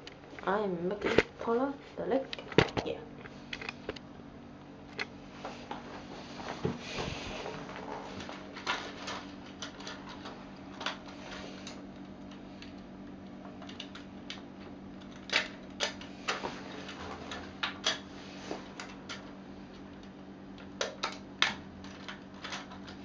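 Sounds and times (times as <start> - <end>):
faint steady hum: 0.0 - 23.0
plastic parts clicking: 13.6 - 14.4, 20.0 - 23.0.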